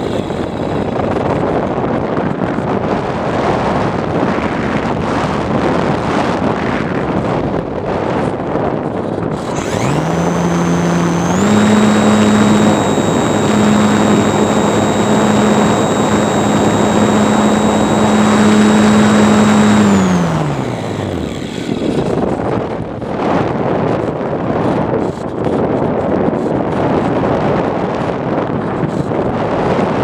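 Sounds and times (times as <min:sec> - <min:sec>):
model plane motor whining: 0:00.0 - 0:00.9, 0:09.4 - 0:22.4.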